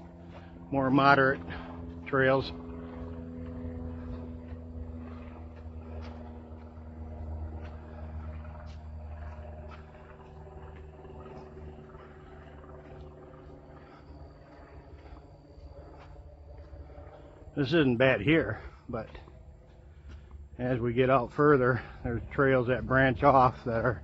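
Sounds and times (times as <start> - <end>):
footsteps on dirt trail: 0.0 - 24.0
steady low hum: 0.0 - 24.0.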